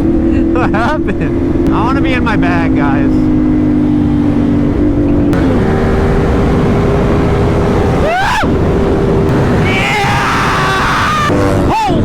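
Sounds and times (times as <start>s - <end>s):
wind rushing over microphone: 1.6s - 11.7s
motorcycle engine running: 3.2s - 12.0s.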